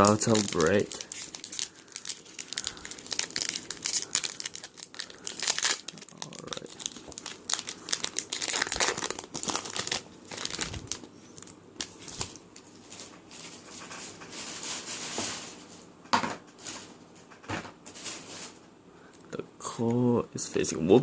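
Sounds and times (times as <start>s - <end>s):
foil wrapper tearing and crinkling: 0.0s - 12.4s.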